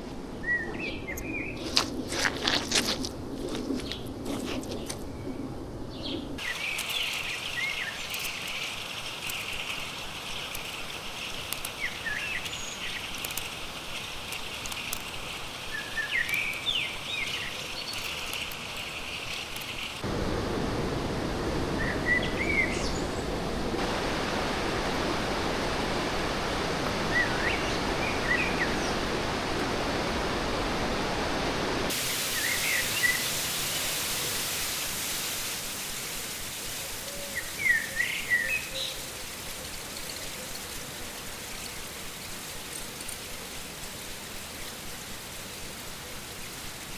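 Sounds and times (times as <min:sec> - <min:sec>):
small birds chirping: 0:00.4 - 0:20.0, 0:31.9 - 0:46.9
fast-flowing stream rushing: 0:23.4 - 0:38.9.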